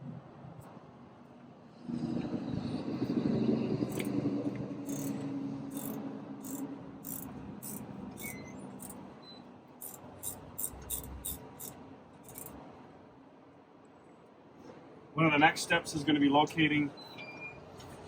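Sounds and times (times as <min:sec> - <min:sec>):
vehicle engine hum: 0:00.0 - 0:13.4.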